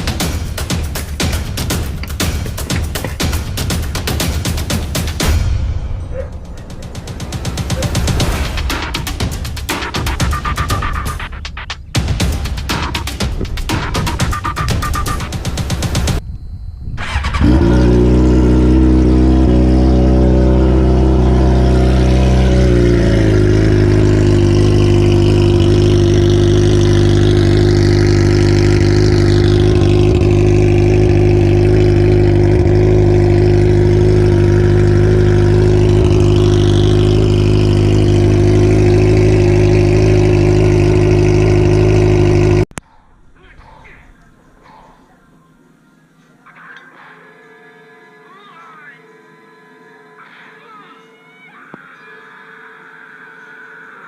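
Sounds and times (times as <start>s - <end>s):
motorcycle engine starting and idling: 17.0s - 42.8s.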